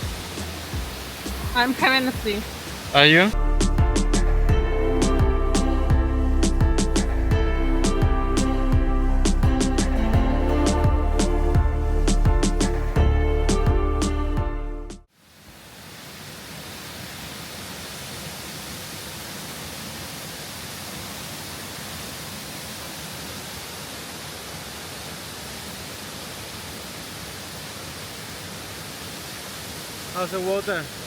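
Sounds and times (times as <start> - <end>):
waterfall rushing: 0.0 - 3.4, 15.3 - 31.0
background music: 0.0 - 15.1.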